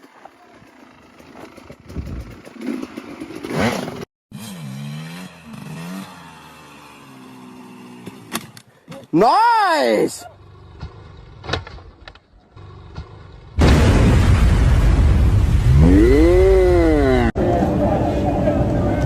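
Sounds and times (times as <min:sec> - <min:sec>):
dirt bike engine revving: 0:01.0 - 0:08.3, 0:15.7 - 0:17.3.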